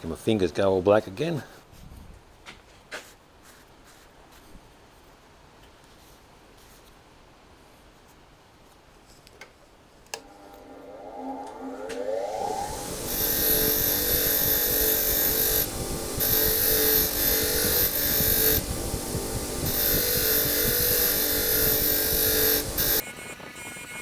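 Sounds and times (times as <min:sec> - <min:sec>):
high hiss: 0:10.2 - 0:23.0
small electric power tool humming: 0:10.2 - 0:24.0.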